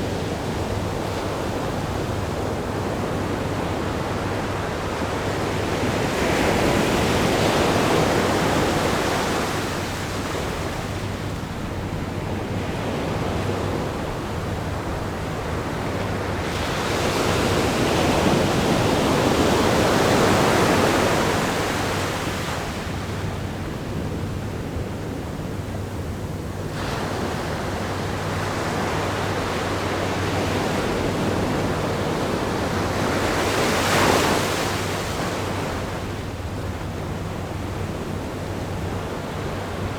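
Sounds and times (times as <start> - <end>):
ocean surf breaking: 26.7 - 37.6.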